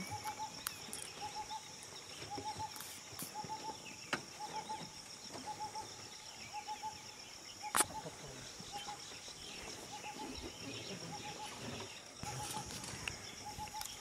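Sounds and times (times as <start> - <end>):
sharp click: 7.7 - 8.0.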